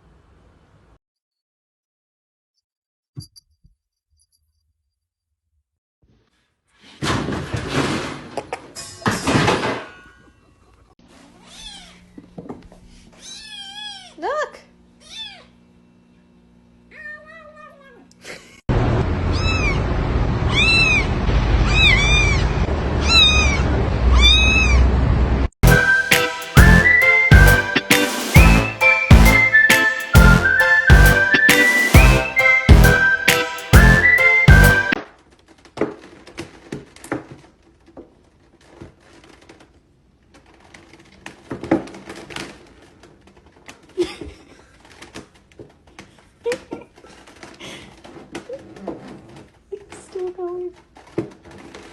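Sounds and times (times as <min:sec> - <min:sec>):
cat meowing: 0:11.4 - 0:12.0, 0:13.2 - 0:14.2, 0:15.0 - 0:15.5, 0:16.9 - 0:18.0, 0:19.3 - 0:19.9, 0:20.5 - 0:24.9
music with whistled tune: 0:25.6 - 0:35.0.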